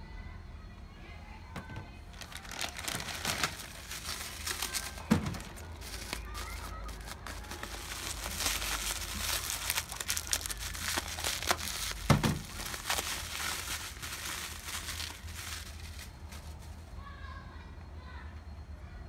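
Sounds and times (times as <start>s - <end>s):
packaging crinkling and rustling: 1.6s - 16.9s
loud thump: 12.1s - 12.5s.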